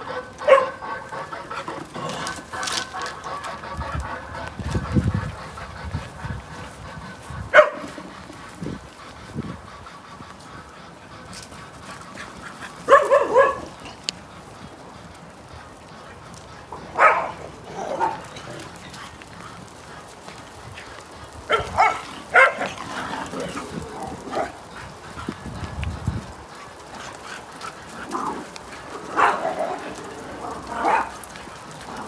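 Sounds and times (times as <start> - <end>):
dog barking: 0.0 - 1.1, 7.5 - 7.9, 12.9 - 13.8, 16.8 - 18.2, 21.5 - 22.8, 29.0 - 29.9, 30.6 - 31.2.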